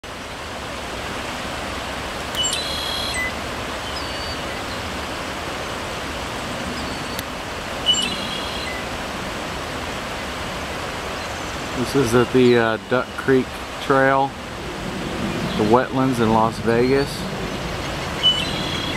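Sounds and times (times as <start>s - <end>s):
rushing outdoor background noise: 0.0s - 18.9s
small bird calling: 2.4s - 4.9s, 6.7s - 8.9s, 17.4s - 18.9s.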